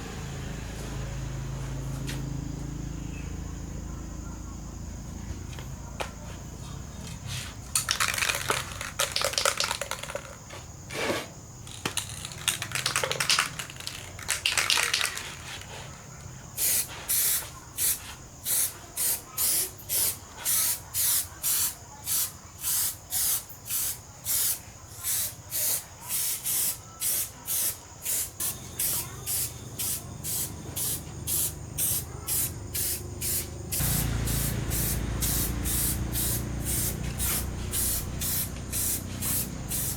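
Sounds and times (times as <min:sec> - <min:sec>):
spray nozzle hissing: 0:16.6 - 0:39.9.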